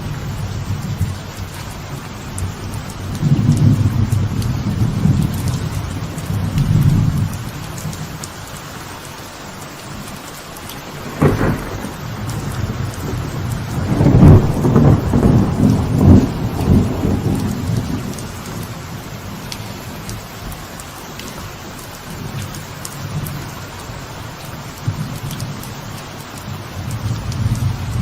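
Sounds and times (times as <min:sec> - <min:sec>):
thunder rumbling: 0:00.0 - 0:08.0, 0:10.7 - 0:20.5
light rain falling: 0:00.0 - 0:28.0
sharp thunder crack: 0:10.8 - 0:18.2.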